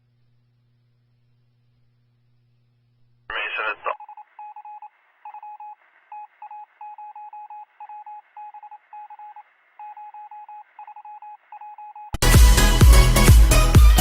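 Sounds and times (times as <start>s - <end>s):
faint radio hiss: 0.0s - 6.5s.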